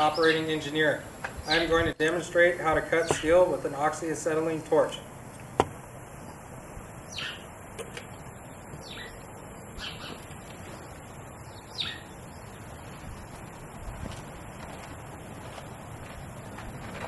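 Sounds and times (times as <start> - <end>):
bird calling: 0.0 - 1.9, 2.6 - 3.9, 7.0 - 7.6, 8.7 - 12.8
outdoor background hiss: 0.0 - 17.0.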